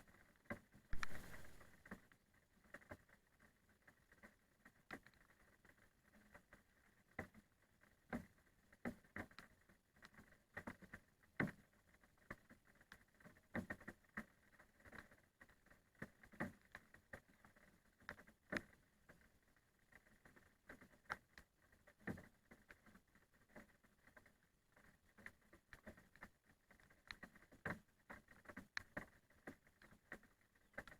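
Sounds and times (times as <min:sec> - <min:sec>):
raindrops tapping: 0:00.9 - 0:01.7.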